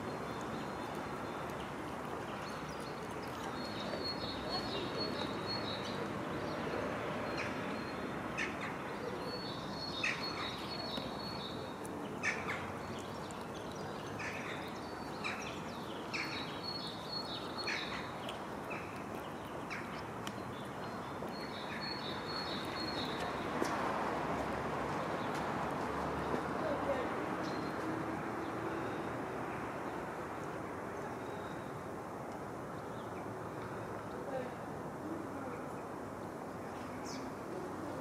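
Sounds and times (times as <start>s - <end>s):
small birds chirping: 0.0s - 23.7s
outdoor background noise: 0.0s - 38.0s.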